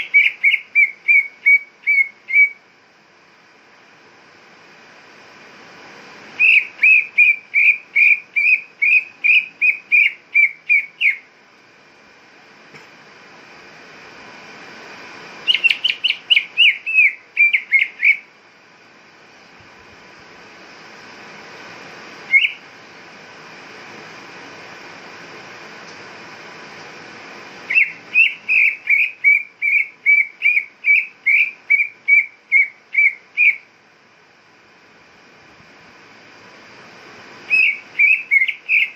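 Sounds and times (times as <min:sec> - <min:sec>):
steady hiss: 0:00.0 - 0:38.9
bird whistling short notes: 0:06.4 - 0:11.2, 0:22.3 - 0:22.6, 0:37.5 - 0:38.9.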